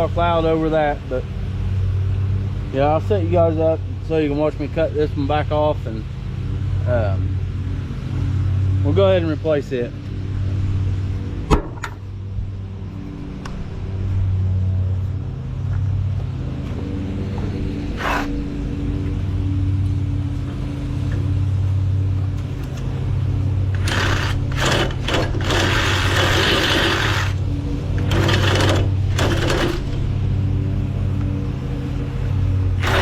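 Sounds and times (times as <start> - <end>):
engine running: 0.0 - 33.0
hissing cutting bursts: 23.8 - 27.4, 32.8 - 33.0.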